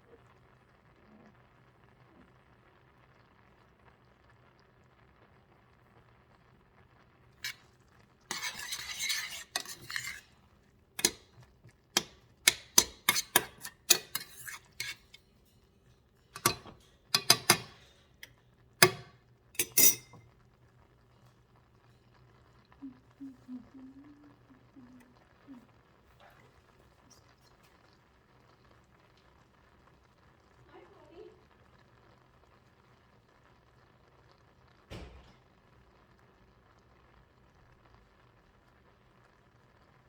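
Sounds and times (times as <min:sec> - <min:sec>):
metal spoon scraping in a bowl: 0:07.4 - 0:07.7, 0:08.3 - 0:10.4, 0:11.0 - 0:20.2
spoon tapping against a dish: 0:11.0 - 0:15.3, 0:16.4 - 0:17.9, 0:18.8 - 0:20.2.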